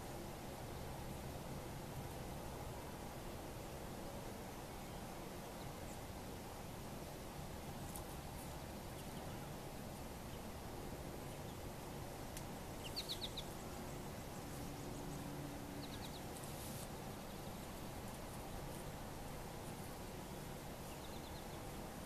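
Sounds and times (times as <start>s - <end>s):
small bird chirping: 12.7s - 17.8s, 20.8s - 21.8s.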